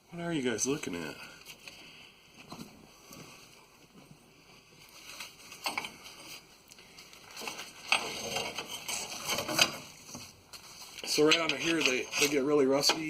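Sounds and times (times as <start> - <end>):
scraping on rusty metal: 7.4 - 10.2.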